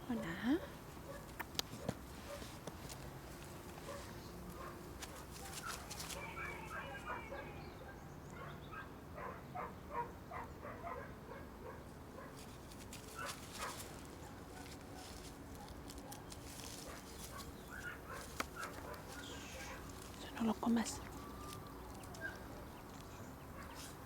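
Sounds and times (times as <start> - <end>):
puppies whimpering and yipping: 5.6 - 7.6.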